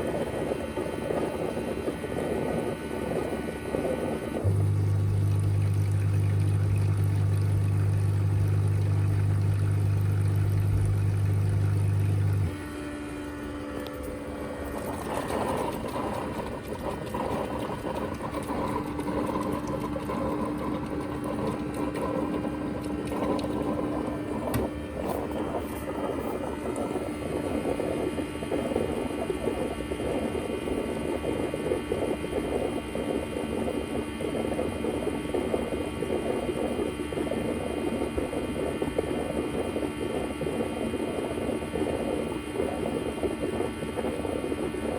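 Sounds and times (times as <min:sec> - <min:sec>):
loud low hum: 0:04.4 - 0:30.2.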